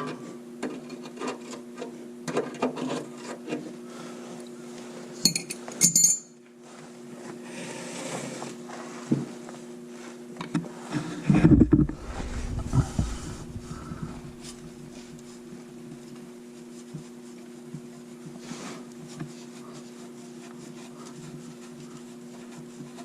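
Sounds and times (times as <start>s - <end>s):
rumbling handling noise: 11.2s - 15.4s
steady low hum: 11.2s - 15.8s.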